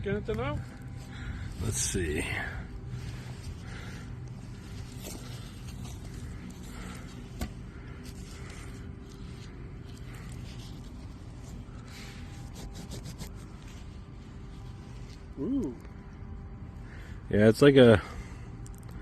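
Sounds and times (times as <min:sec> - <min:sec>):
fingers rubbing soil off metal: 0:11.9 - 0:13.7
small ticks: 0:18.6 - 0:19.0.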